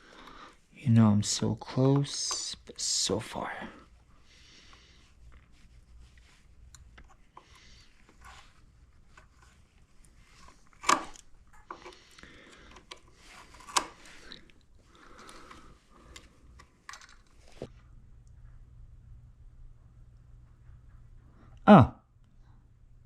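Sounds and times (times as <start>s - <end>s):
hands rustling on plastic parts: 4.6s - 17.7s.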